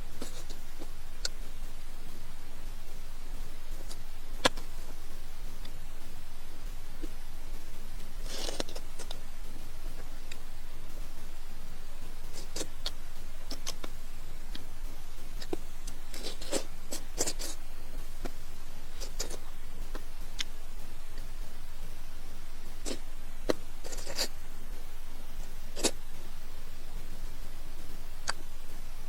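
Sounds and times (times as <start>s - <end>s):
steady hiss: 0.0s - 29.0s
crisp crunches of eating: 0.2s - 1.4s, 8.2s - 9.2s, 12.3s - 14.7s, 15.3s - 17.6s, 18.2s - 20.5s, 22.8s - 24.4s, 25.8s - 26.1s
chewing and mouth clicks: 8.2s - 9.2s, 12.3s - 13.9s, 15.3s - 17.6s, 18.2s - 20.5s, 22.8s - 24.3s.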